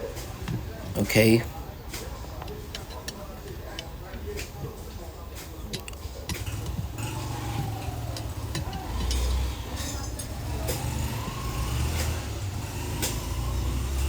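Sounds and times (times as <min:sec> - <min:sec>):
low engine rumble: 0:00.0 - 0:14.0
sharp clicks: 0:00.2 - 0:04.7, 0:05.3 - 0:09.5.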